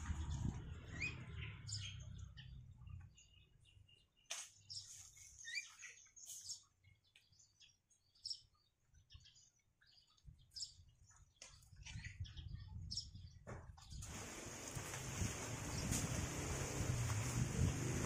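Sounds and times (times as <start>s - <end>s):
faint high-pitched bird chirps: 0.3s - 14.0s.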